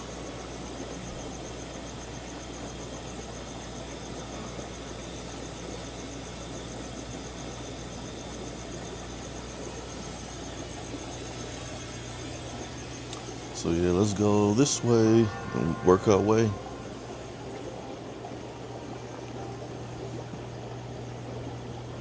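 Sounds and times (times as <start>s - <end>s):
aquarium equipment humming: 0.0s - 22.0s
low mains hum: 0.0s - 22.0s
high-pitched pulsing: 12.0s - 18.2s.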